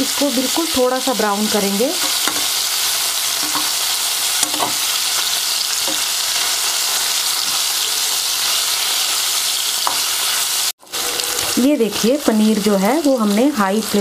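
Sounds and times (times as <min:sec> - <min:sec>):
food sizzling in hot oil: 0:00.0 - 0:14.0
spatula knocking metal pan: 0:02.0 - 0:02.6, 0:03.4 - 0:03.8, 0:04.4 - 0:04.9.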